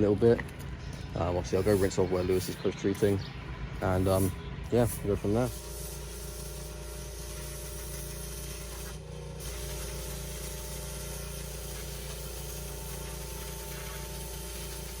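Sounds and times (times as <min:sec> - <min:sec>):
pressure washer engine: 0:00.0 - 0:15.0
hissing water spray: 0:03.8 - 0:15.0.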